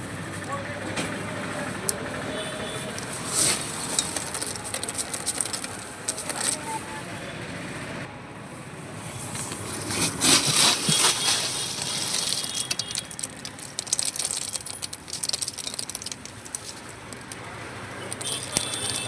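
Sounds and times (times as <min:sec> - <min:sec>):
crispy snack crunching: 0:03.0 - 0:06.6, 0:10.1 - 0:19.0.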